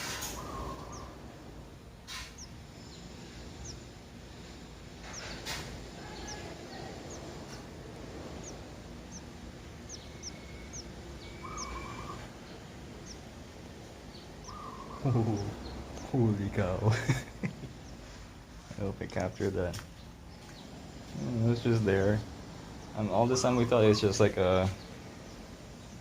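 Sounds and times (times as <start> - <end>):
chicks chirping high: 0.0 - 26.0
lower warbling bird notes: 8.4 - 13.3.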